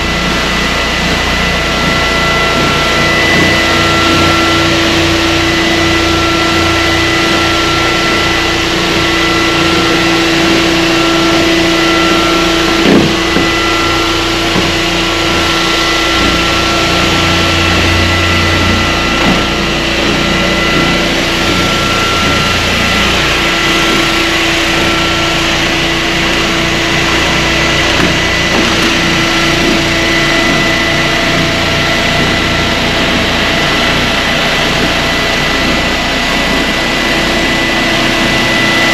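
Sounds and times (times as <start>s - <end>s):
floor sanding machine running: 0.0s - 38.9s.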